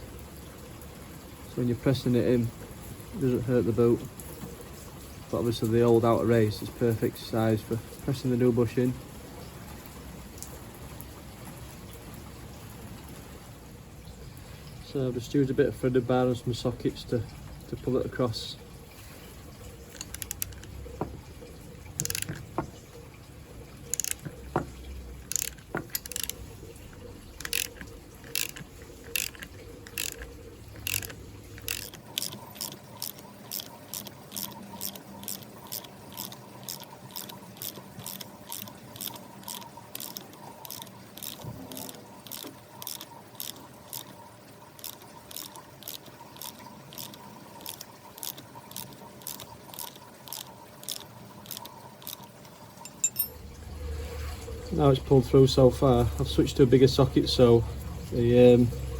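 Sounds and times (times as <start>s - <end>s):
ratchet clicking: 19.9s - 21.2s, 22.0s - 22.7s, 23.9s - 26.4s, 27.4s - 44.1s, 44.8s - 52.2s.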